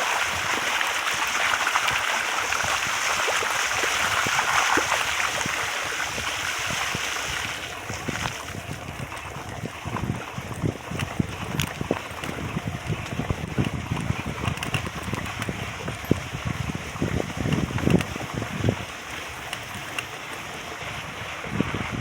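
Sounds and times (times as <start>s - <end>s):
wind buffeting microphone: 0.0s - 22.0s
knocks and crackles: 17.0s - 20.1s.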